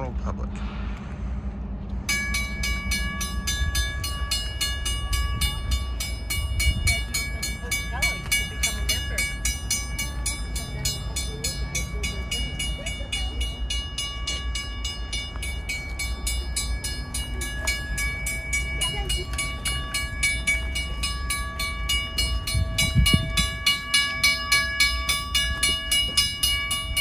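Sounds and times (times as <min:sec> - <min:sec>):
rail yard rumble: 0:00.0 - 0:27.0
steady ringing tones: 0:01.5 - 0:27.0.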